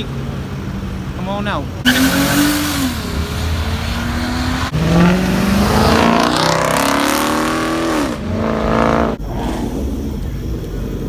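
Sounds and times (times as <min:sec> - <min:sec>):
car engine revving loudly: 0:01.8 - 0:10.4.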